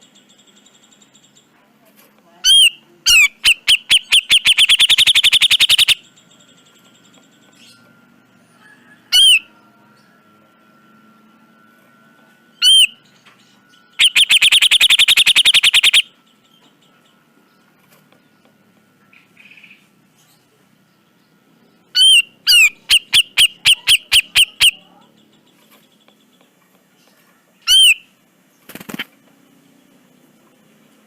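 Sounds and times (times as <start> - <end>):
sharp arched bird notes: 2.5 - 6.1, 12.5 - 13.1, 13.9 - 16.2, 21.9 - 24.9, 27.6 - 28.2
bird rasping rattle call: 2.6 - 6.0, 14.0 - 16.0.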